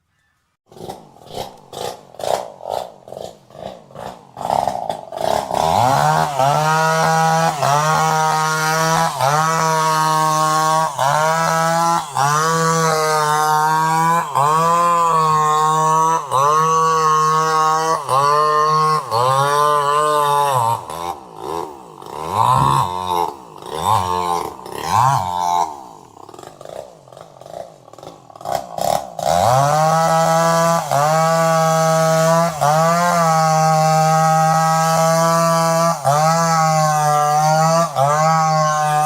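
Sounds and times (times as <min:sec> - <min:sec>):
chainsaw engine running: 0:00.7 - 0:39.0.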